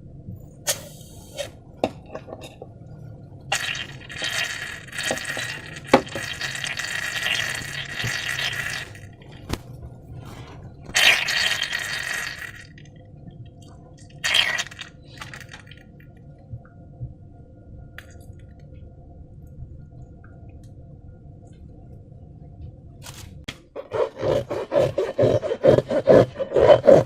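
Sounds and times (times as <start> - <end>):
faint low hum: 0.0 - 27.0
slime squelching and splashing: 3.5 - 9.6, 10.3 - 12.8, 14.1 - 15.8.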